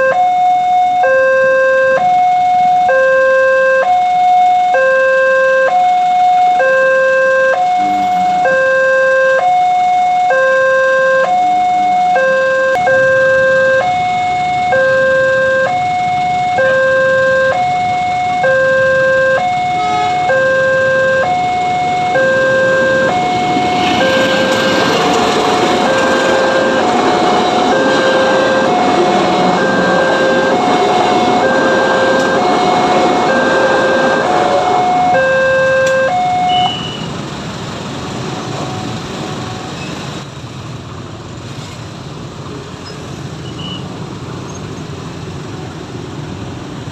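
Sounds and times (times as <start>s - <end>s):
level crossing two-tone alarm: 0.0s - 37.0s
train passing: 7.6s - 10.4s, 17.7s - 46.9s.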